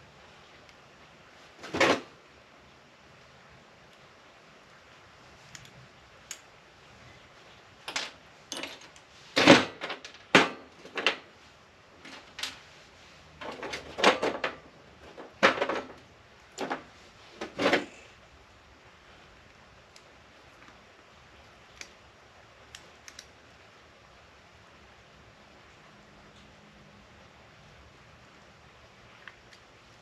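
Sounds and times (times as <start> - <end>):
tools and metal parts clattering: 7.9 - 11.2, 13.4 - 16.0, 16.6 - 18.0.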